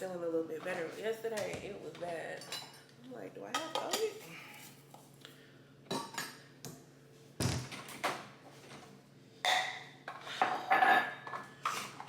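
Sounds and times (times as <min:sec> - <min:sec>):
kitchen items knocking and thudding: 0:07.4 - 0:08.8.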